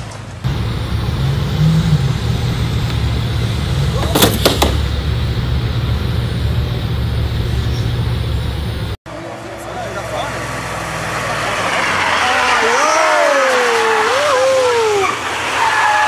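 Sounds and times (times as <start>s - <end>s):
car engine idling: 0.4s - 12.9s.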